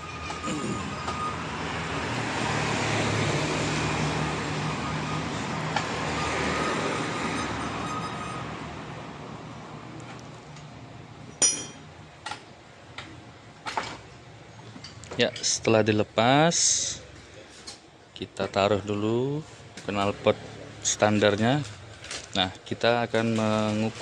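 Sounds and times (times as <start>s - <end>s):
passing vehicle engine and road noise: 0.0s - 24.0s
sharp metallic clinks: 11.3s - 11.9s.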